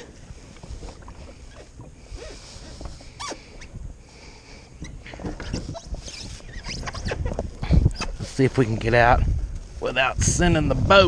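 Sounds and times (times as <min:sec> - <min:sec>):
scuffs and knocks in kayak: 0:00.0 - 0:03.8, 0:04.8 - 0:08.4
wind rumbling on microphone: 0:00.0 - 0:11.0
short rising squeak: 0:03.2 - 0:03.7, 0:04.8 - 0:07.3.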